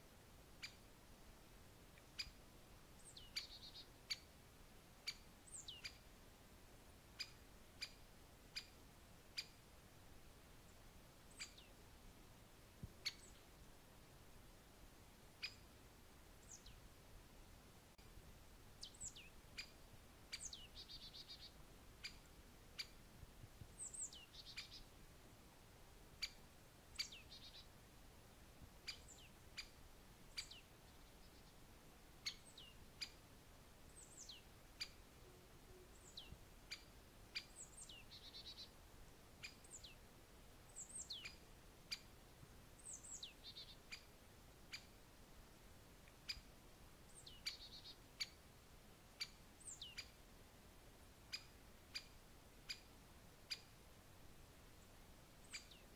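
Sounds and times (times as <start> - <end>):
small birds calling: 0.6 - 0.9, 2.0 - 2.4, 3.0 - 4.3, 5.0 - 6.1, 10.7 - 11.8, 13.0 - 13.6, 16.3 - 16.8, 18.8 - 23.0, 23.8 - 24.9, 26.2 - 27.8, 28.8 - 33.2, 33.9 - 38.8, 39.4 - 40.1, 40.7 - 42.2, 42.8 - 45.0, 46.1 - 48.4, 49.1 - 50.2, 51.3 - 52.9, 54.8 - 55.9.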